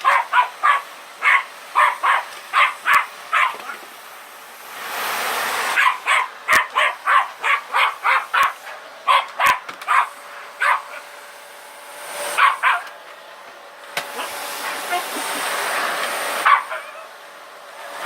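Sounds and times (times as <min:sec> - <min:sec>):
dog barking excitedly: 0:00.0 - 0:03.8, 0:05.8 - 0:11.1, 0:12.4 - 0:13.0, 0:16.4 - 0:17.1.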